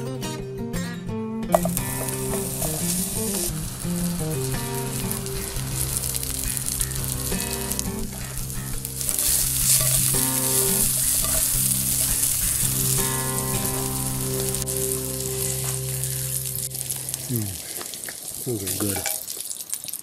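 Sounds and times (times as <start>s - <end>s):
steady low pitched notes: 1.6s - 17.4s
sausage sizzling in a skillet: 1.6s - 20.0s.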